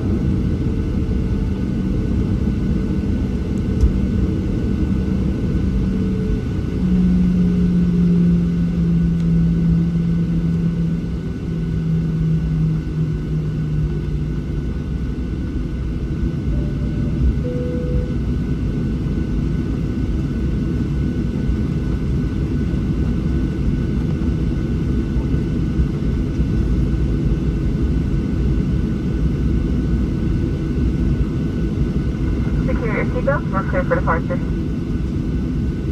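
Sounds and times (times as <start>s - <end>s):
aircraft cabin engine rumble: 0.0s - 35.9s
low hum: 16.2s - 19.4s, 30.6s - 35.1s
faint high whine: 16.4s - 18.7s.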